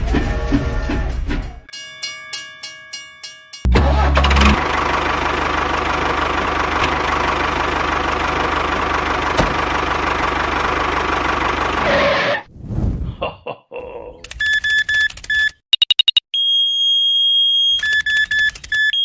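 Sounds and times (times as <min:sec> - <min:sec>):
engine starting and knocking: 0:03.7 - 0:12.2.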